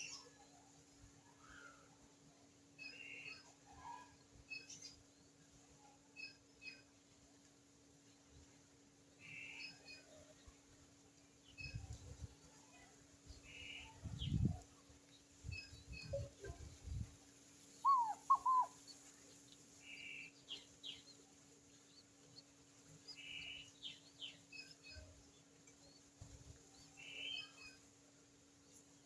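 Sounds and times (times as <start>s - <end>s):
faint steady hum: 0.0s - 29.0s
birds chirping: 17.7s - 27.9s
downward-sliding bird calls: 17.8s - 18.8s.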